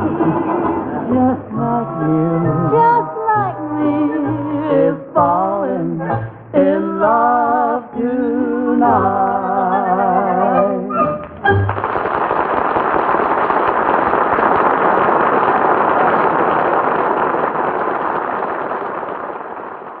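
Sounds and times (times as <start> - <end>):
studio audience applauding: 11.4 - 20.0.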